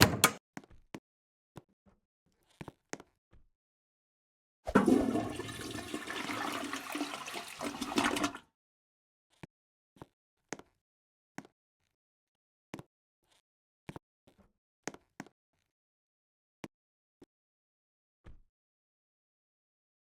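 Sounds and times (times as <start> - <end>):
rushing water: 4.8 - 8.4.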